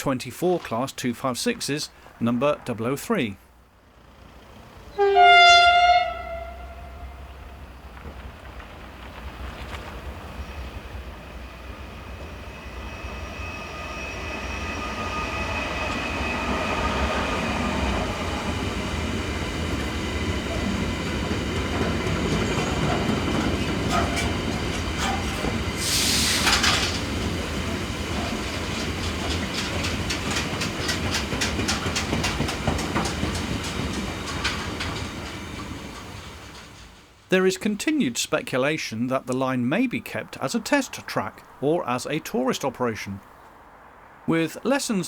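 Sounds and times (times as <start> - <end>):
freight train rumble and motor whine: 3.6 - 38.4
wheels clacking over rail joints: 3.9 - 12.5, 15.3 - 42.6
loud hiss: 25.8 - 27.1.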